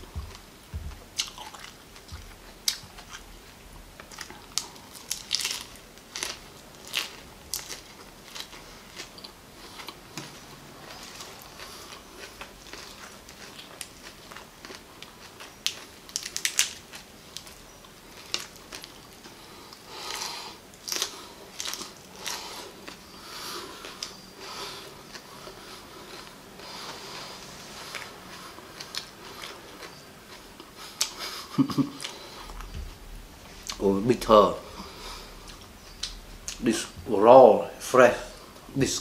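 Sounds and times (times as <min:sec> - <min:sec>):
chewing crisp flowers: 0:04.0 - 0:32.7.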